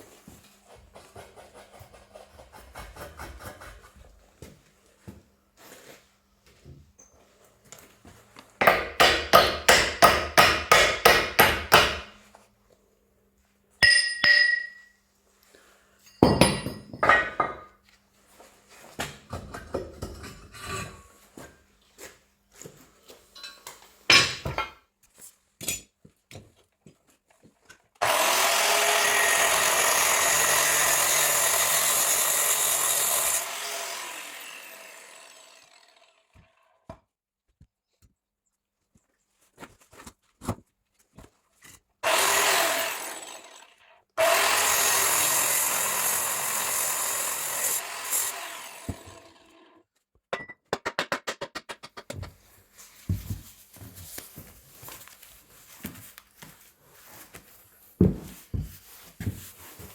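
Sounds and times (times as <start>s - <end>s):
power tool running: 28.0s - 36.6s, 42.0s - 49.7s.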